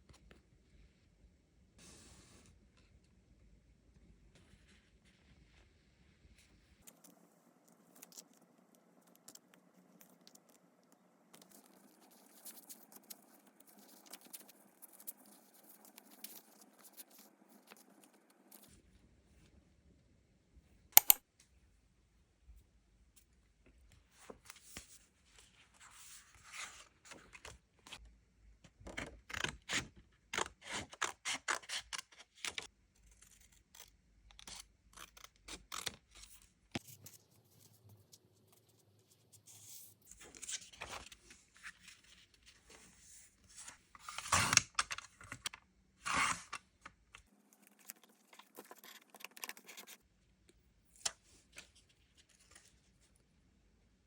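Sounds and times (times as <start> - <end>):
paper and stickers handled: 6.8 - 18.8, 30.6 - 50.1, 50.9 - 53.2
quick clicks and scratches: 44.1 - 50.0.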